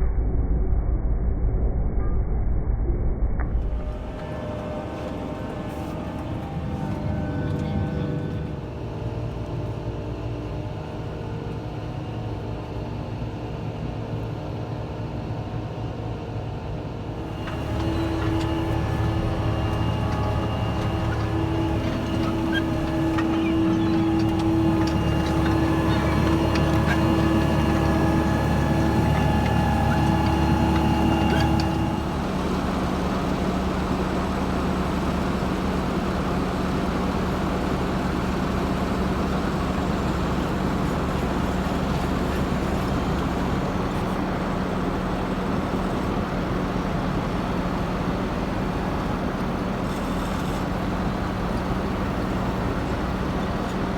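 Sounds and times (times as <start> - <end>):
tractor engine under load: 17.2 - 53.9.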